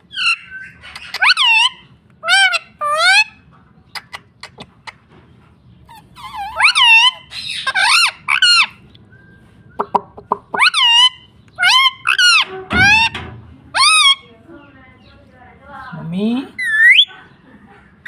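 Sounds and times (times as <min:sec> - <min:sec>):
parrot calls: 0:00.0 - 0:05.0, 0:05.9 - 0:08.8, 0:09.8 - 0:14.3, 0:16.5 - 0:17.4.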